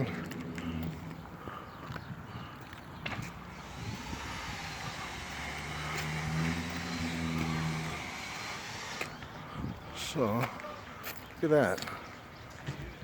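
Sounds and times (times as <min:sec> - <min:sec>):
road noise: 0:00.0 - 0:12.7
car engine hum: 0:03.4 - 0:09.3.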